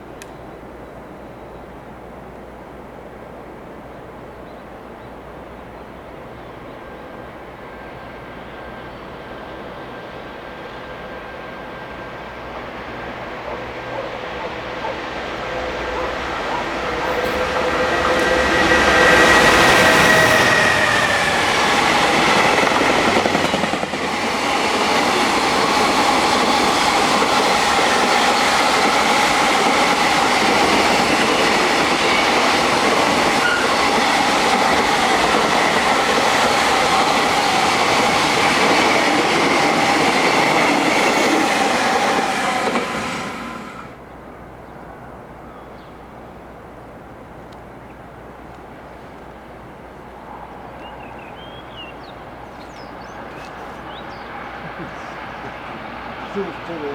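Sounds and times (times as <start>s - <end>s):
freight train wagons rattling: 6.2s - 45.2s, 48.8s - 56.9s
steady whining tones: 7.1s - 44.0s.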